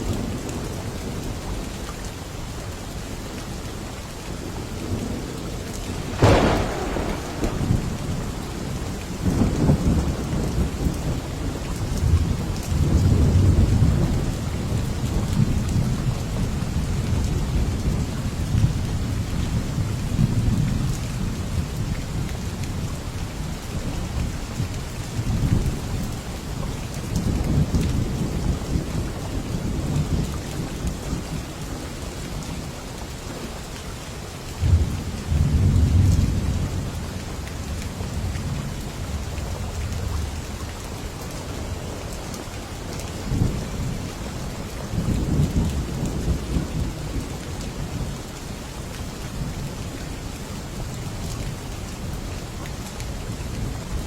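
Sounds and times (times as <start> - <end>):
steady rain: 0.0 - 54.0
rolling thunder: 5.9 - 14.3.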